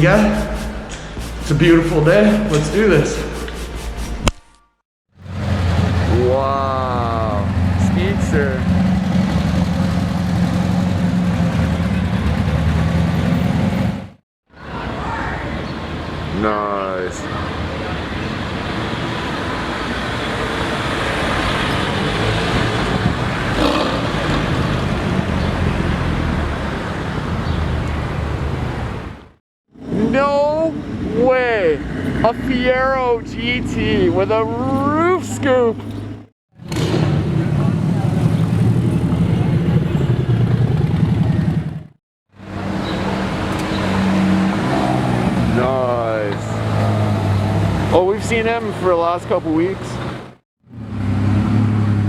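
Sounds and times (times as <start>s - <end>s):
car engine running: 0.0s - 3.6s
road traffic passing: 0.0s - 4.4s, 5.1s - 52.0s.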